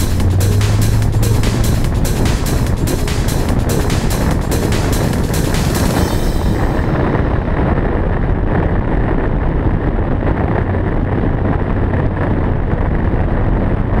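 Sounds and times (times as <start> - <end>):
car engine running: 0.0 - 7.8
wind buffeting microphone: 0.0 - 14.0.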